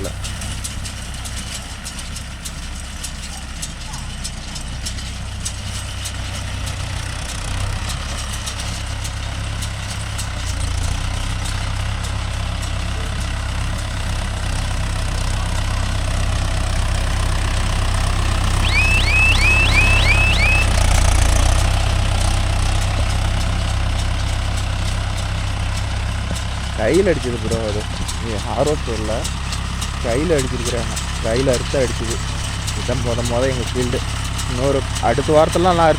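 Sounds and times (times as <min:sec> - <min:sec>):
tractor diesel engine running: 0:00.0 - 0:35.9
quick rising chirps: 0:18.6 - 0:20.7.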